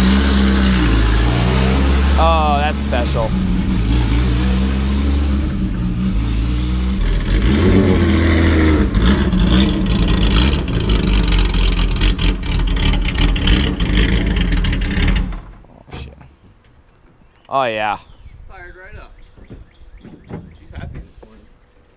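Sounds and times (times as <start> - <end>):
race car engine driving off: 0.0 - 15.6.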